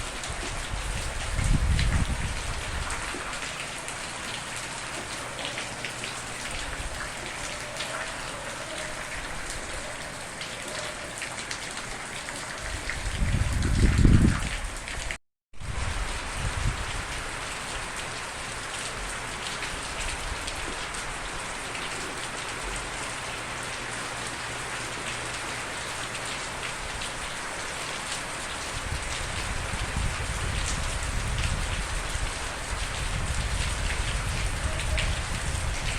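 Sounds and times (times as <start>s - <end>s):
heavy rain hiss: 15.7s - 35.9s.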